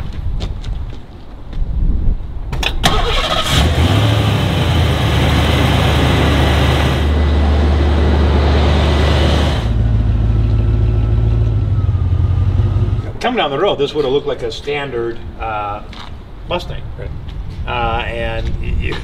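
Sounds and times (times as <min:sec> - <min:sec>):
car engine starting and idling: 0:02.6 - 0:13.2.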